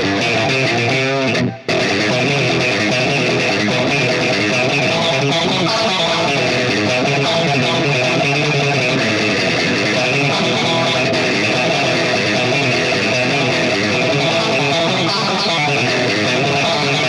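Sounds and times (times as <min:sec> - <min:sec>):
overdriven electric guitar: 0:00.0 - 0:17.0.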